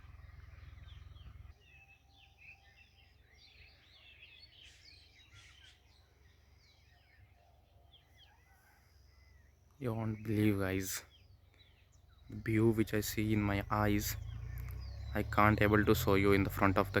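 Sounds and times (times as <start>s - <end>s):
low hum: 0.0s - 1.8s
small birds chirping: 0.0s - 17.0s.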